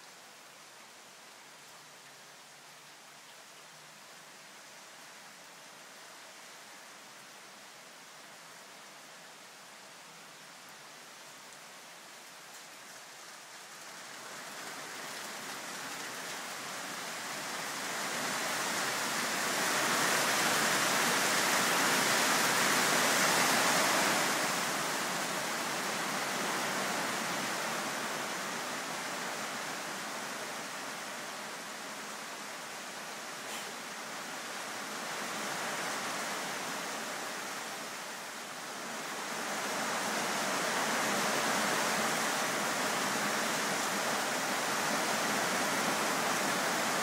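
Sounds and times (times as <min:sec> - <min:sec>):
rain falling: 0:00.0 - 0:47.0.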